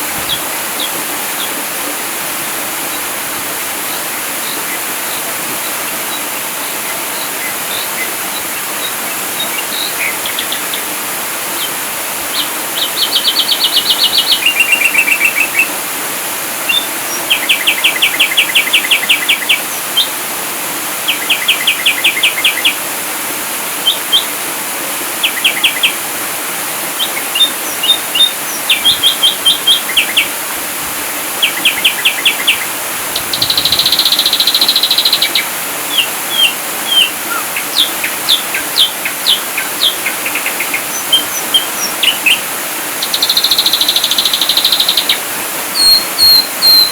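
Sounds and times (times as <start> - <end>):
steady hiss: 0.0 - 46.9
bird singing rapid notes: 31.4 - 42.4, 43.0 - 46.9.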